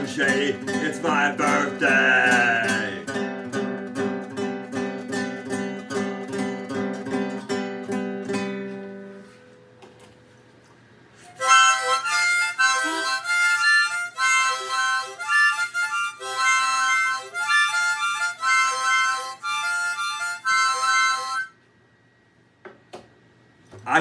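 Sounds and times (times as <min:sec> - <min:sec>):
instrumental solo: 0:11.4 - 0:21.5.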